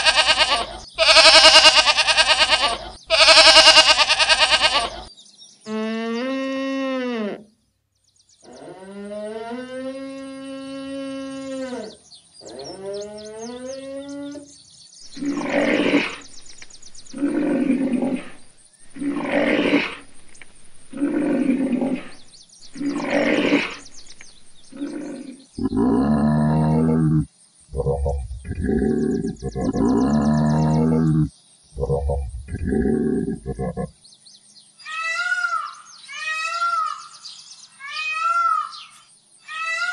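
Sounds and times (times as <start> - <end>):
drawn-out animal calls: 0.0 - 5.1
rough loud animal calls: 0.0 - 5.1, 10.9 - 34.0.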